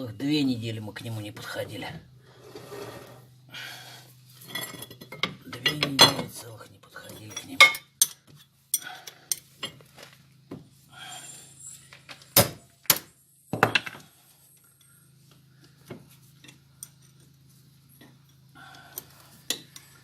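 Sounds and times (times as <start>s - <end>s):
metal tools clanking on steel: 4.4s - 9.9s, 16.3s - 20.0s.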